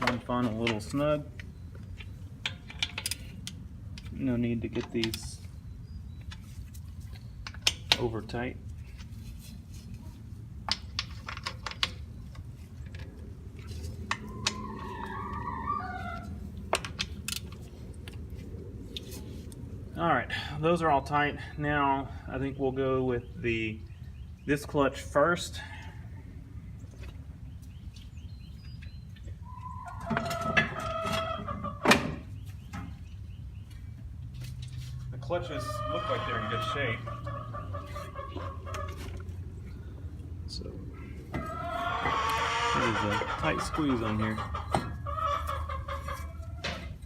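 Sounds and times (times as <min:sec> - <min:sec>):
chickens clucking: 0:29.4 - 0:33.0, 0:35.3 - 0:39.8, 0:41.3 - 0:47.0.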